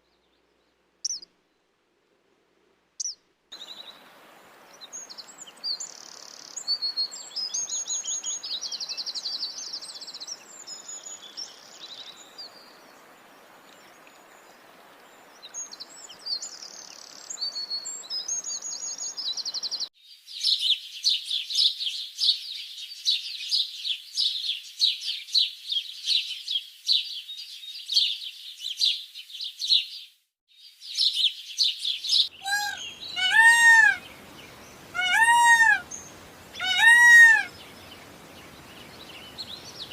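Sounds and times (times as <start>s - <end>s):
background hiss: 0.0s - 21.1s, 30.8s - 39.9s
small birds chirping and trilling: 1.0s - 1.3s, 4.7s - 39.9s
chorus of many birds chirping: 15.0s - 39.9s
rising and falling bird cries: 32.2s - 39.9s.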